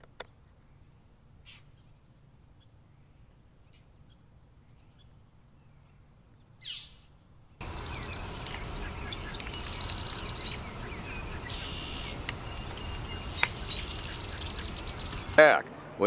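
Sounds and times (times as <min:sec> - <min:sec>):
outdoor background noise: 0:00.0 - 0:16.0
birds chirping: 0:07.6 - 0:16.0.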